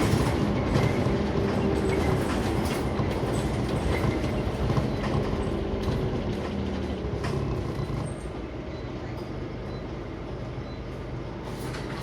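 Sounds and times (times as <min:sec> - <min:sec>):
interior rattles and clicks: 0:00.0 - 0:08.4
bus engine droning: 0:00.0 - 0:12.0.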